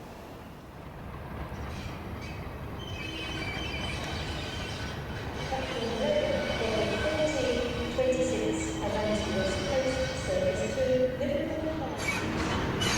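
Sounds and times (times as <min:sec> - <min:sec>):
train rumbling on rails: 0:00.0 - 0:12.9
wheel squeal: 0:12.0 - 0:12.9.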